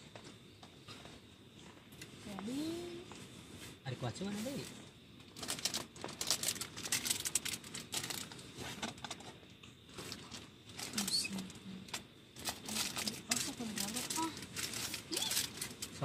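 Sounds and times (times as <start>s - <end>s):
crinkling and rustling: 4.4s - 16.0s.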